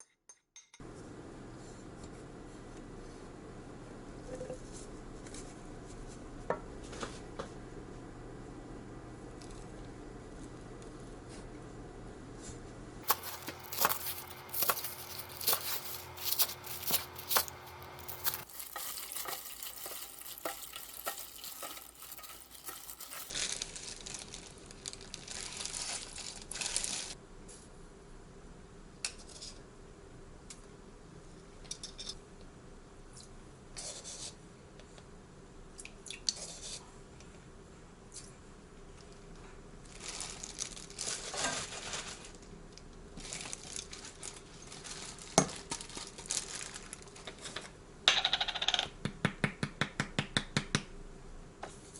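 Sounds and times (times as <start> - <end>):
crinkling and tearing: 13.0 - 27.2, 39.8 - 42.5, 43.1 - 47.6.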